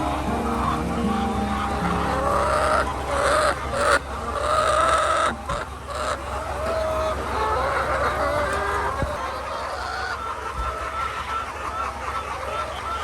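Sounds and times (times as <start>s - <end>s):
low steady hum: 0.0s - 6.6s
hens clucking: 0.0s - 13.0s.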